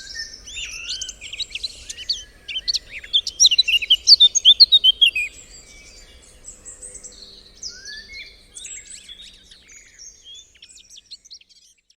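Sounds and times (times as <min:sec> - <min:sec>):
songbirds chirping and whistling: 0:00.0 - 0:12.0.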